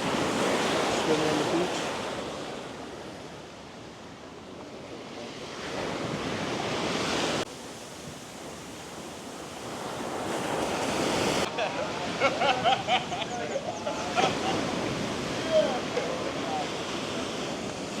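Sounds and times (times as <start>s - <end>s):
waves washing onto beach: 0.0s - 18.0s
wind buffeting microphone: 9.9s - 18.0s.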